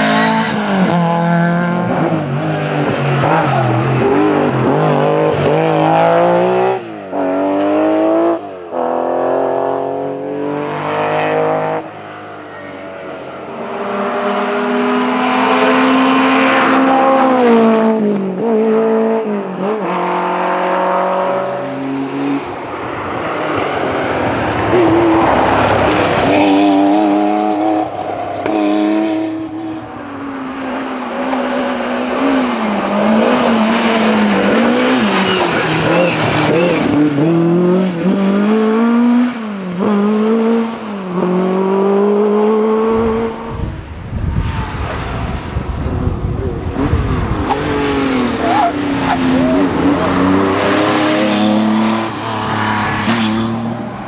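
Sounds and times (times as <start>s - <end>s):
rally car engines revving: 0.0s - 54.0s
tyre squeal: 34.9s - 37.0s.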